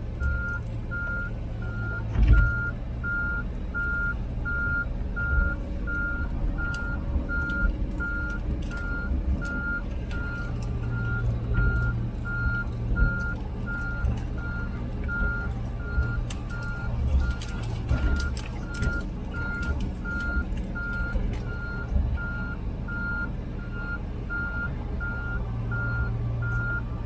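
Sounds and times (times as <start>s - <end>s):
diesel engine running: 0.0s - 27.0s
excavator travel alarm beeping: 0.1s - 27.0s.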